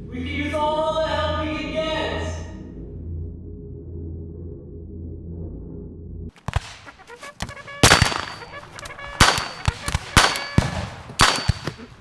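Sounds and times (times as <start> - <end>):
loud sharp bangs: 6.4 - 12.0.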